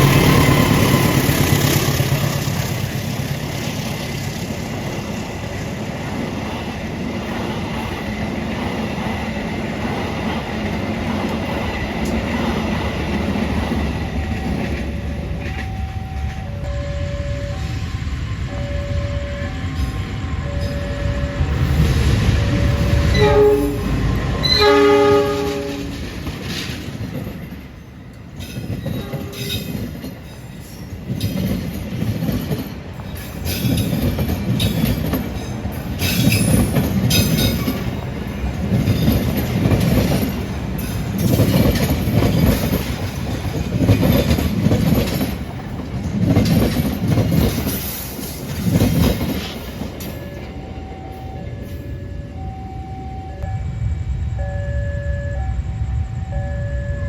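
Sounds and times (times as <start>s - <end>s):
train wheels clattering: 0.0s - 16.7s, 19.7s - 50.6s
train horn: 22.5s - 26.1s, 29.0s - 29.7s.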